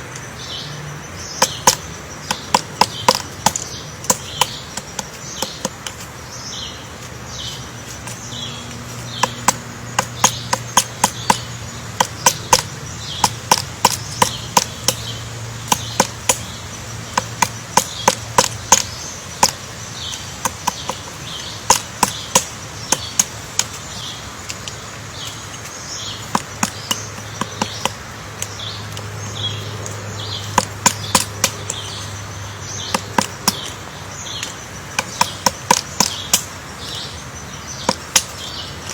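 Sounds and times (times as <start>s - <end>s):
woodpecker knocking on wood: 0.0s - 38.9s.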